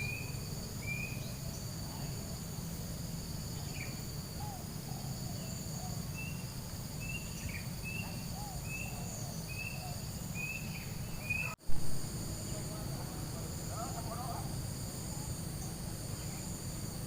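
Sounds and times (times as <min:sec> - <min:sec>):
crickets trilling: 0:00.0 - 0:17.0
faint lower insect calls: 0:00.0 - 0:17.0
short chirping call: 0:03.6 - 0:11.6.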